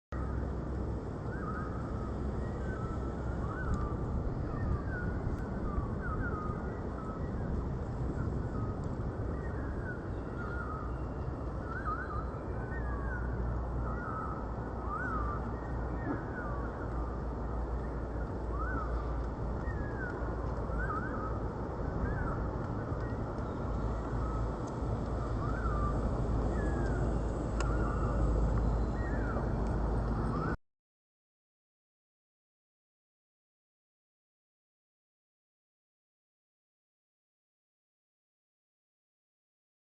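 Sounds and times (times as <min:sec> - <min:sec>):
birds chirping: 0:01.2 - 0:30.6.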